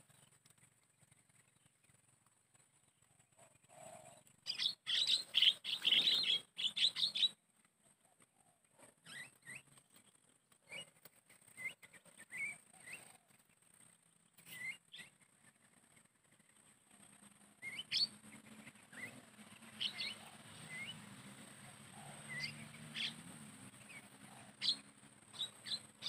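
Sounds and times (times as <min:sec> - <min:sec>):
bird chirps: 0:00.0 - 0:07.4, 0:08.0 - 0:26.0
birds chattering calls: 0:02.8 - 0:07.4, 0:16.5 - 0:26.0.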